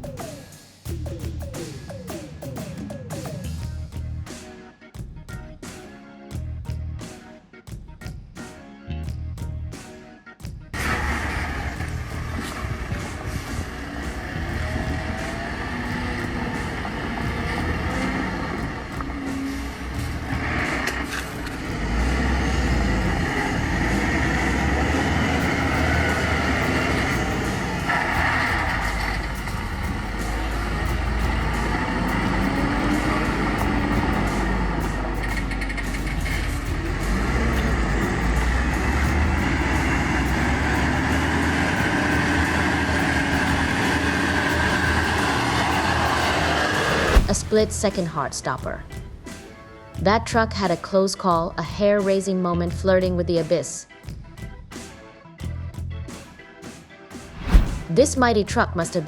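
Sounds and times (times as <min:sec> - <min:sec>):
heavy vehicle engine rumbling: 0:10.8 - 0:47.7.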